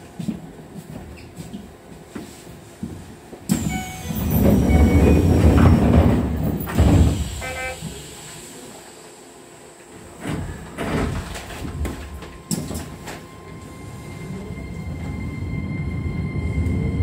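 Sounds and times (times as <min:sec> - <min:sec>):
train wheels rushing on rails: 0:03.5 - 0:08.8.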